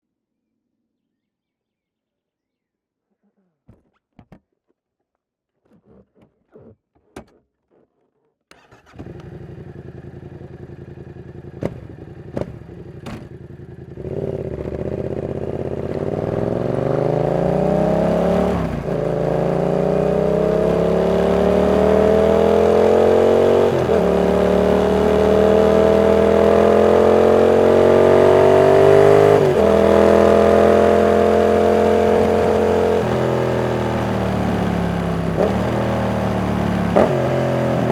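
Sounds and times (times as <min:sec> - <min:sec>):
motorcycle engine revving: 0:08.5 - 0:37.9.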